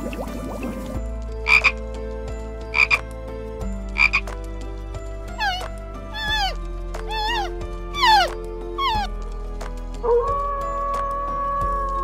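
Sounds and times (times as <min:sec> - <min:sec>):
frog croaking: 0:01.4 - 0:01.8, 0:02.7 - 0:03.1, 0:04.0 - 0:04.3, 0:05.4 - 0:09.0
animal call with falling pitch: 0:05.4 - 0:09.1, 0:10.0 - 0:12.0.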